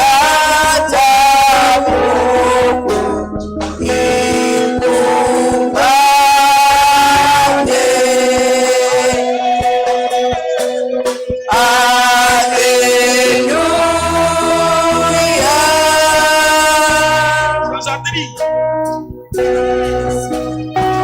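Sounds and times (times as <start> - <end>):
low bass line: 0.0 - 10.4, 11.5 - 21.0
choir singing held notes: 0.0 - 18.5
instrumental backing: 0.0 - 21.0.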